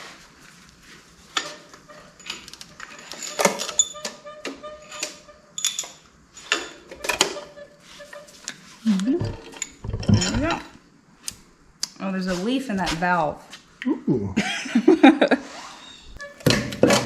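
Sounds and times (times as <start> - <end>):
metal bolts clinking and clanking: 4.9 - 7.3.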